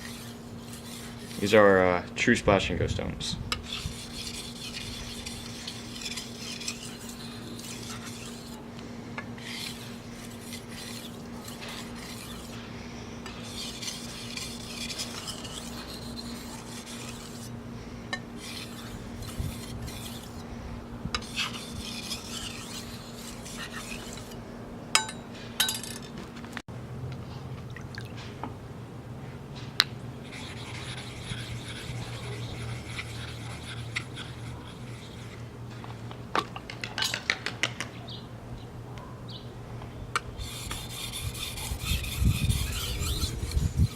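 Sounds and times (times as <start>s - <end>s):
knife scraping on whetstone: 0.0s - 1.6s, 3.5s - 8.6s, 9.4s - 12.6s, 13.2s - 17.5s, 18.4s - 20.4s, 21.2s - 24.4s, 30.2s - 35.4s, 40.4s - 43.9s.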